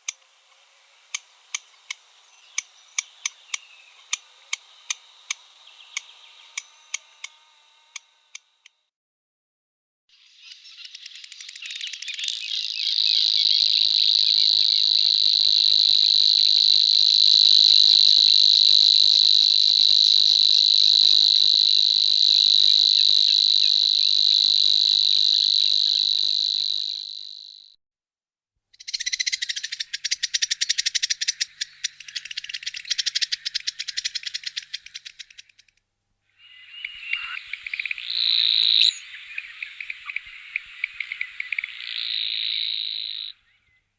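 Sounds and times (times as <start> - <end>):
rapid ticking rattle call: 0.0 - 8.6, 10.8 - 27.2, 28.8 - 35.8
bird reeling buzz song: 0.0 - 8.9, 10.1 - 27.8, 28.8 - 43.9.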